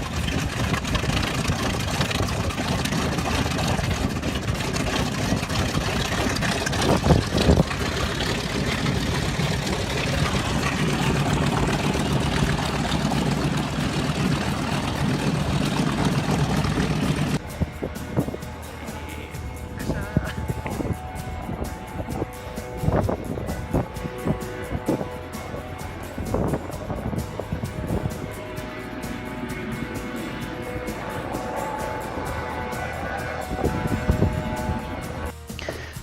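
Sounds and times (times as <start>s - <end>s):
radial aircraft engines idling: 0.0s - 36.0s.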